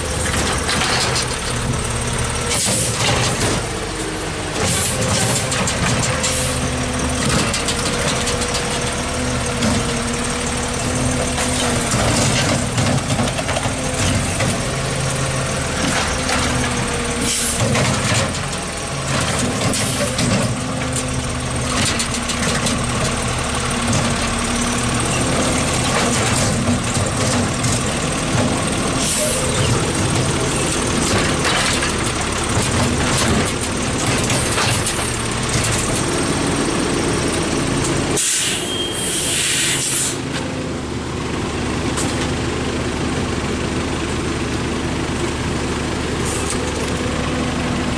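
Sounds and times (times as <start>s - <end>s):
garbage truck engine idling: 6.2s - 17.8s, 18.4s - 47.9s
air brake hiss: 38.2s - 40.2s.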